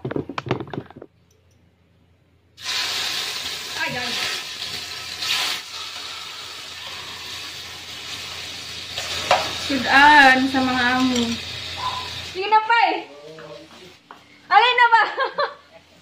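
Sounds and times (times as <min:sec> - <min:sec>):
hot oil sizzling in frying pan: 0:02.6 - 0:12.5.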